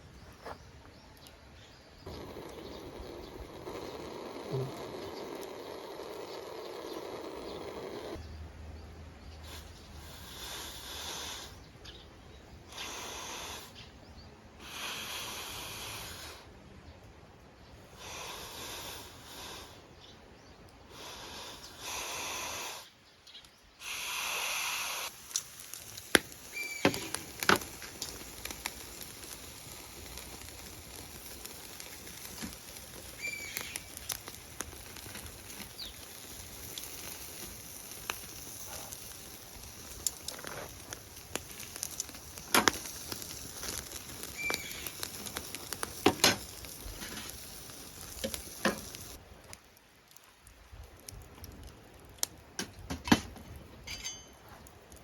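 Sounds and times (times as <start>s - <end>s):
fire hissing: 0.0s - 8.3s, 9.2s - 16.8s, 17.8s - 55.0s
wood fire crackling: 0.0s - 55.0s
fire pops: 0.2s - 8.3s, 23.2s - 55.0s
high squeals from fire: 2.1s - 8.2s, 23.8s - 49.2s.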